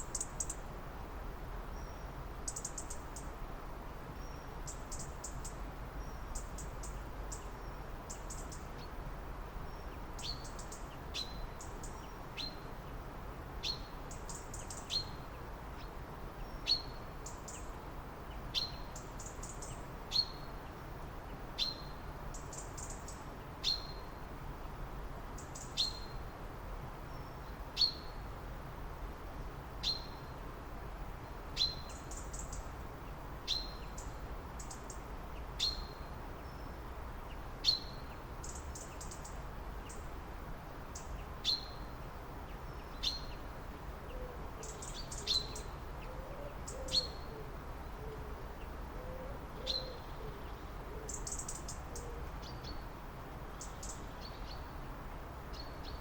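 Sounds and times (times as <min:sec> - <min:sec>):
background hiss: 0:00.0 - 0:56.0
faint low bird warbling: 0:49.0 - 0:52.8.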